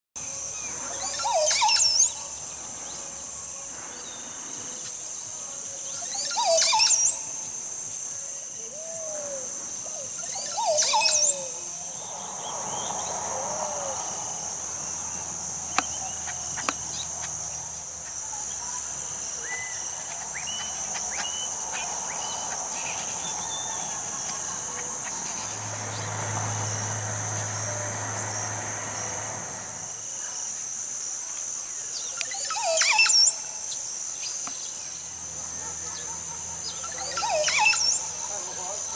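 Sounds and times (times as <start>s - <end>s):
bird singing sweeping songs: 0.2s - 29.0s, 31.6s - 38.9s
high drone of insects: 0.2s - 38.9s
soft bird chirps: 15.7s - 26.1s.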